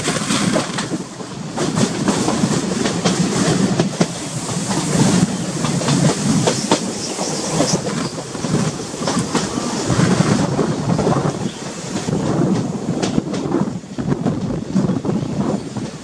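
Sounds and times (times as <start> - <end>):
clicks and clacks from rails: 0.0 - 9.6, 11.6 - 13.6
train wheels rumbling and rattling: 0.0 - 16.0.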